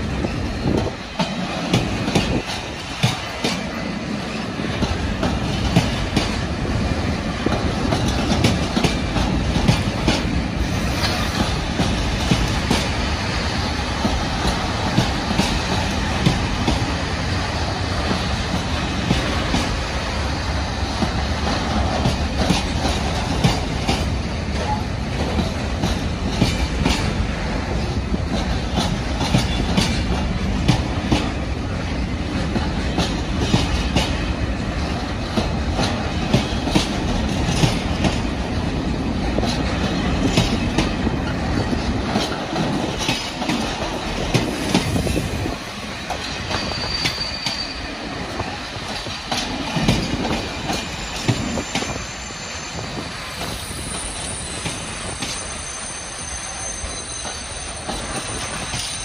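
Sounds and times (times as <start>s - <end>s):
train wheels clattering over joints: 0.0s - 20.0s, 20.8s - 55.6s, 56.9s - 59.0s
high wheel squeal: 46.4s - 48.2s, 50.5s - 59.0s.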